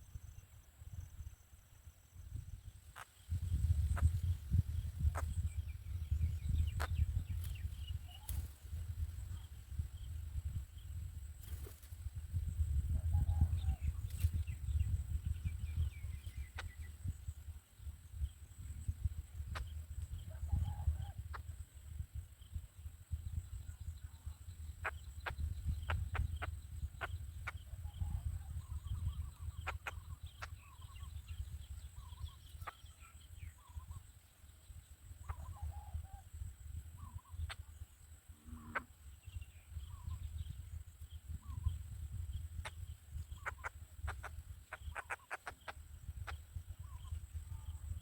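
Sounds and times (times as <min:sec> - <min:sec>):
wind rumble on microphone: 0:00.0 - 0:48.0
faint short bird calls: 0:38.4 - 0:40.2, 0:42.6 - 0:47.8.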